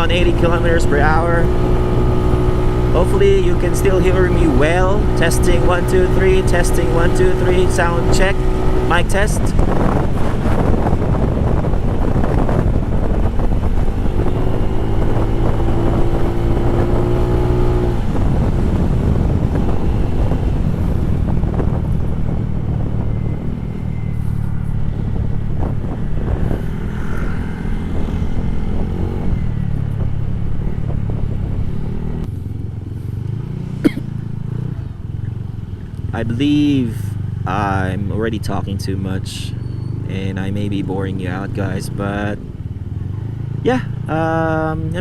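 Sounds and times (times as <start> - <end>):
motorcycle engine drone: 0.0 - 45.0
wind noise on microphone: 0.0 - 45.0
steady tone: 10.7 - 32.9.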